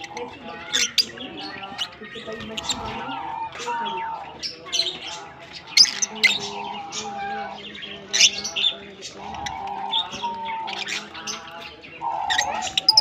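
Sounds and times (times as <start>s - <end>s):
lovebirds chirping and squawking: 0.0s - 13.0s.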